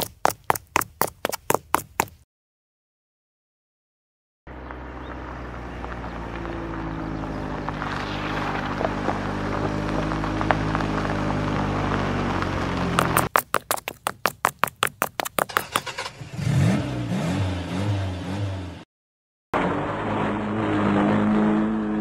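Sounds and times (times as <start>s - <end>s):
vehicle engine running steadily: 4.5s - 13.3s.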